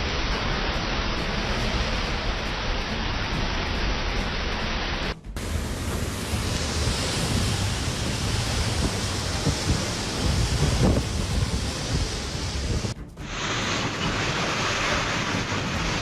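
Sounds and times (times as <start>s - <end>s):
wind buffeting microphone: 5.4s - 13.0s
strong wind blowing: 5.4s - 16.0s.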